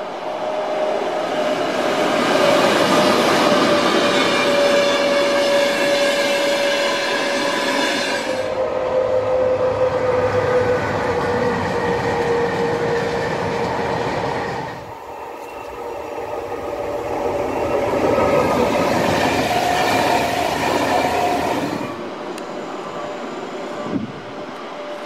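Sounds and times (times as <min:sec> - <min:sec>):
locomotive whine: 0:00.0 - 0:25.0
rumble of wheels and wagons: 0:08.5 - 0:25.0.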